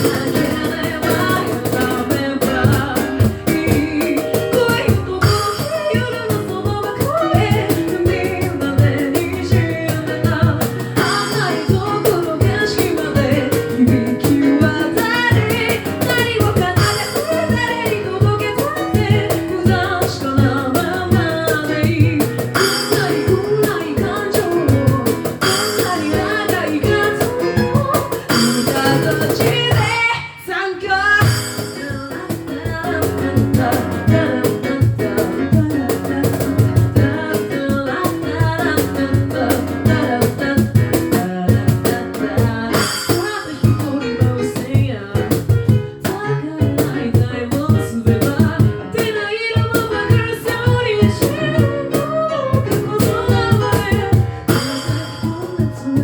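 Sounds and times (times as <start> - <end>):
vocal percussion beat: 0.0 - 30.2, 31.2 - 56.0
a cappella group singing: 25.4 - 29.5, 33.4 - 36.1.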